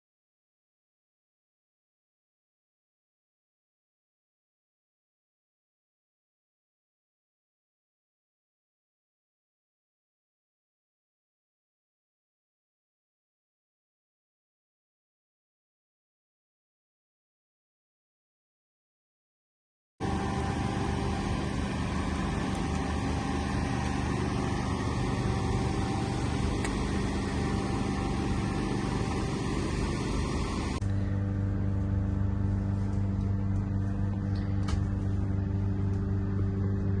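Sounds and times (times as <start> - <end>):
engine running: 20.0 - 37.0
low hum: 20.0 - 37.0.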